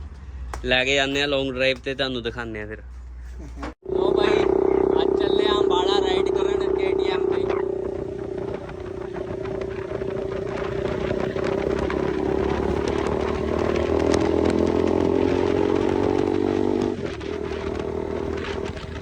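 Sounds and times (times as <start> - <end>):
motorcycle engine revving: 3.8 - 19.0.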